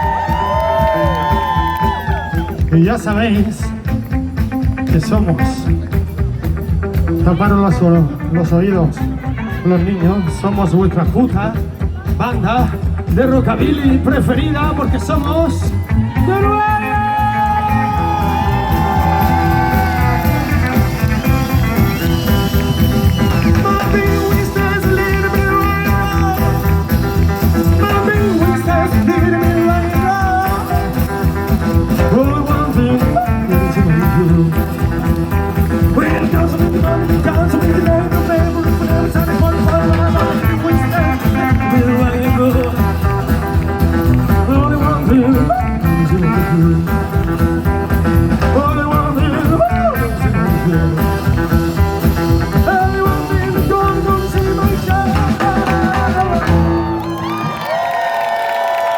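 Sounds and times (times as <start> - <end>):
rockabilly band playing live: 0.0 - 58.9.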